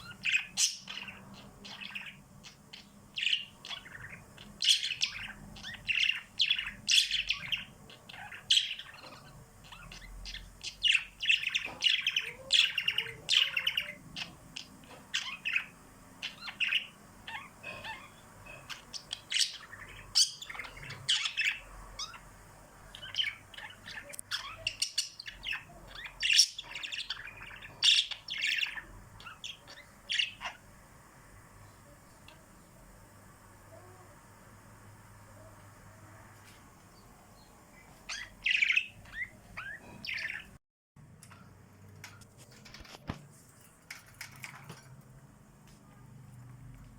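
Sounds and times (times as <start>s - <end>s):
small birds chirping: 0.0s - 40.6s.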